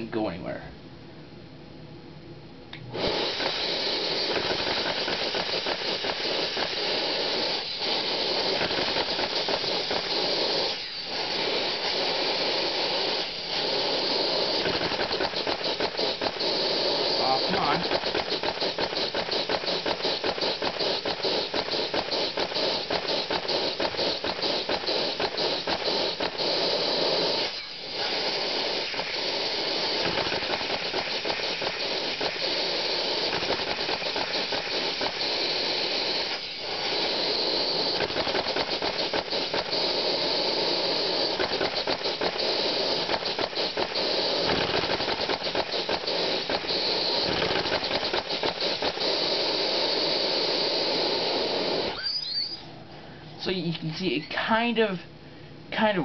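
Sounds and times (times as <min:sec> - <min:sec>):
toy piston engine clattering: 0:13.1 - 0:27.8, 0:28.7 - 0:50.4.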